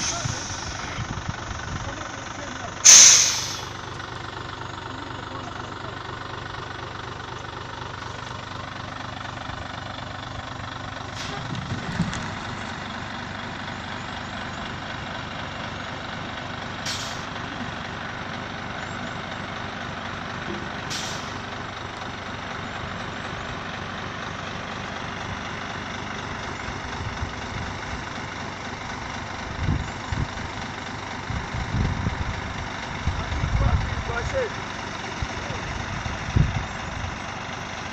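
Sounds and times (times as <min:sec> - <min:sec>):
air brake hisses: 0:00.0 - 0:00.8, 0:02.8 - 0:03.8, 0:11.1 - 0:11.5, 0:16.8 - 0:17.3, 0:20.9 - 0:21.5
truck diesel engine running: 0:00.0 - 0:37.9.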